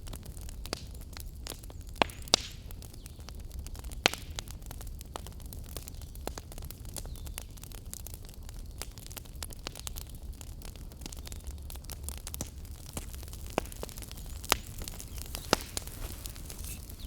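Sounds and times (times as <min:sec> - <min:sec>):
wood fire crackling: 0:00.0 - 0:17.0
sharp fire pops: 0:11.9 - 0:17.0.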